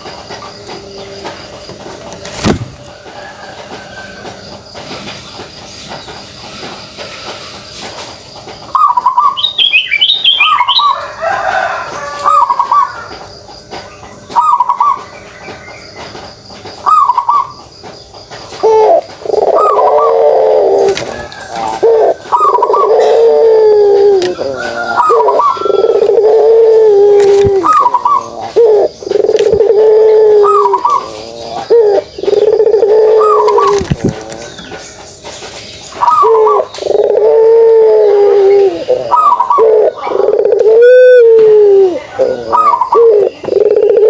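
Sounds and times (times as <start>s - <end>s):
dove cooing: 8.7s - 9.7s, 10.4s - 13.2s, 16.8s - 17.6s, 18.5s - 34.8s, 35.9s - 44.0s
high bird chirps: 8.7s - 11.0s.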